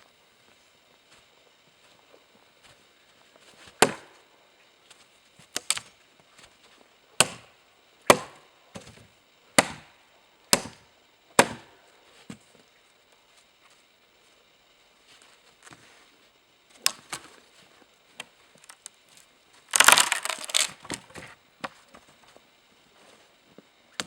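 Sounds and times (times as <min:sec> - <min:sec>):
axe chopping wood: 0:03.8 - 0:04.2, 0:07.2 - 0:07.5, 0:08.1 - 0:08.9, 0:09.6 - 0:09.9, 0:10.5 - 0:10.8, 0:11.4 - 0:11.7.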